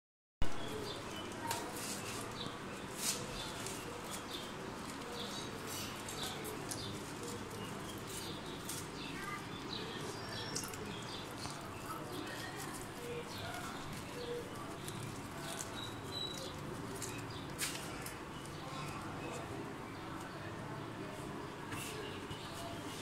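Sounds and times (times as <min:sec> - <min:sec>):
birds chirping: 0:00.4 - 0:23.0.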